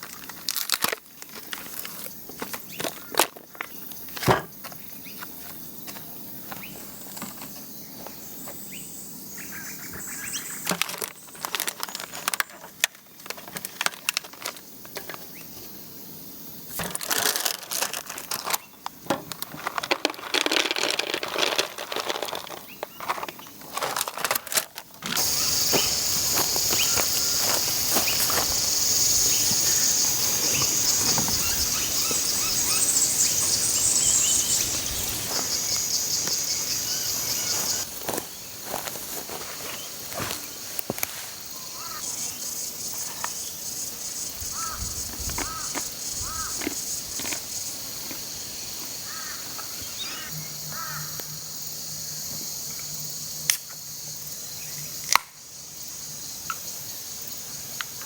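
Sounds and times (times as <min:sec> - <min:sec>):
handling rustling and clicking: 0:19.2 - 0:25.4
high-pitched insect drone: 0:25.1 - 0:58.0.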